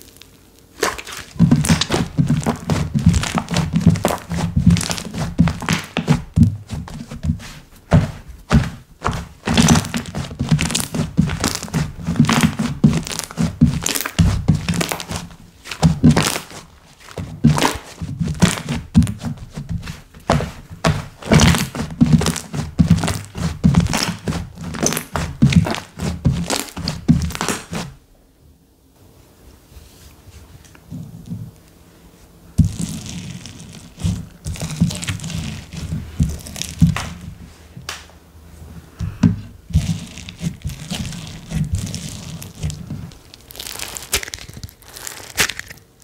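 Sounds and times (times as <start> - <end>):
slime squished by hand: 0.0 - 27.9, 39.8 - 45.9.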